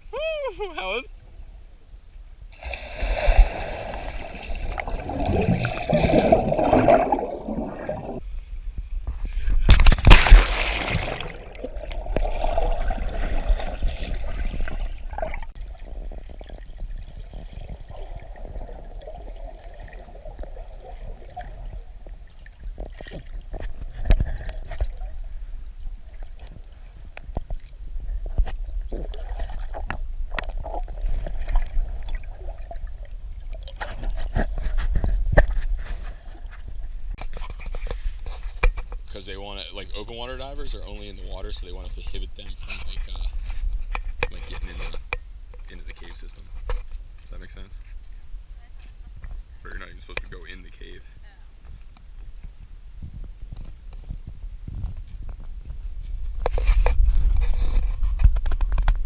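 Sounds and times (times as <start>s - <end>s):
water gurgling: 2.5s - 8.3s, 9.7s - 27.0s, 27.6s - 35.3s
water sloshing and splashing: 2.5s - 8.3s, 9.5s - 25.3s, 26.0s - 38.9s.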